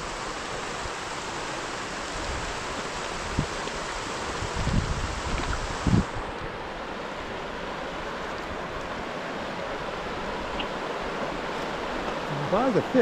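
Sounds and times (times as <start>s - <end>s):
creek water rushing: 0.0s - 13.0s
wind rumble on microphone: 2.1s - 6.6s.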